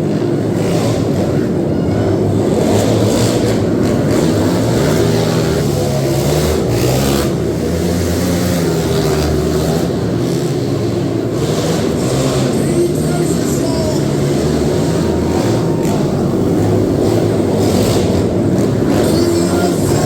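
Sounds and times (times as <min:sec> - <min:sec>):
quad engines revving: 0:00.0 - 0:20.0.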